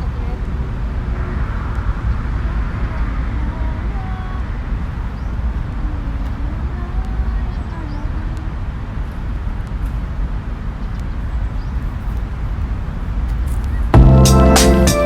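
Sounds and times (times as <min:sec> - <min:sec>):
low outdoor rumble: 0:00.0 - 0:15.0
background music with a beat: 0:14.0 - 0:15.0.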